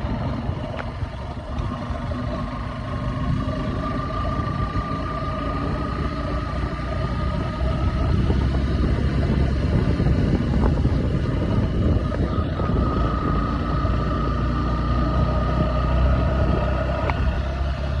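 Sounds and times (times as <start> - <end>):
motorcycle engine running: 0.0 - 18.0
road and wind noise: 0.0 - 18.0.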